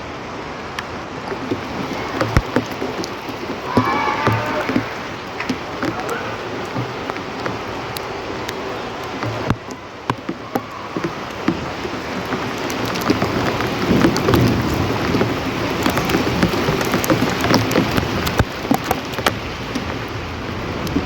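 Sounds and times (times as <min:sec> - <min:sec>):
steady rain: 0:00.0 - 0:21.0
raindrops pattering on hard surface: 0:00.1 - 0:21.0.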